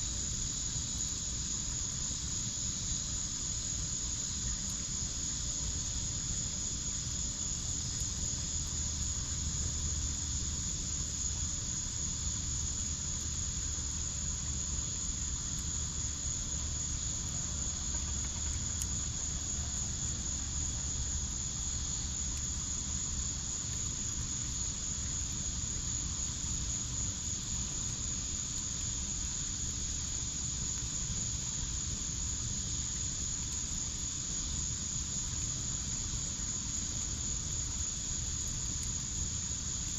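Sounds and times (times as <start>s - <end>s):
crickets chirring: 0.0s - 39.9s
wood fire crackles: 14.8s - 25.4s.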